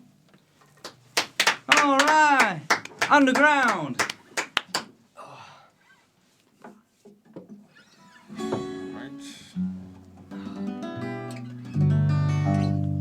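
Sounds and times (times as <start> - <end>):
guitar notes and chords: 8.3 - 13.0.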